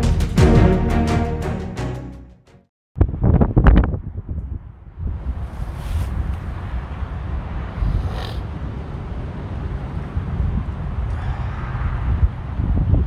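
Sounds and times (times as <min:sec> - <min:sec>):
wind buffeting microphone: 0:03.0 - 0:11.1
brief rustle: 0:05.4 - 0:07.0.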